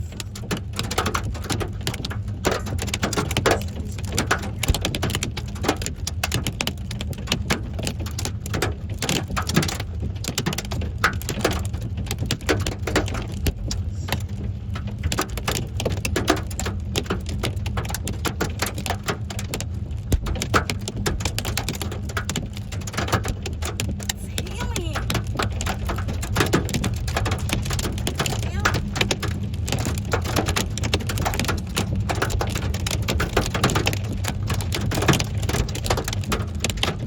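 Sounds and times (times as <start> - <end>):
hailstones striking hard surfaces: 0.1 - 37.0
steady low rumble: 18.8 - 23.0.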